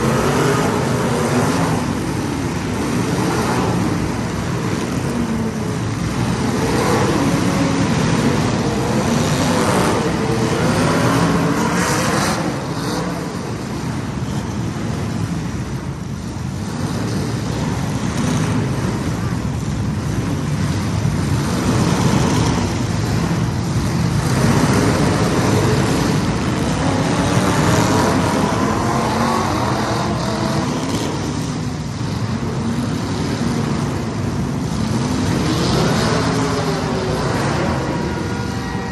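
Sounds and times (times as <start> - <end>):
race car engines: 0.0 - 38.9.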